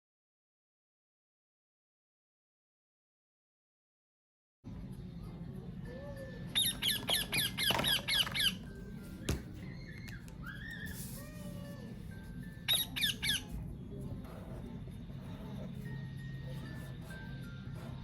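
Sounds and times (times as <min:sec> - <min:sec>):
low background hum: 0:04.7 - 0:18.0
parrot squawking: 0:06.6 - 0:08.6, 0:12.7 - 0:13.6.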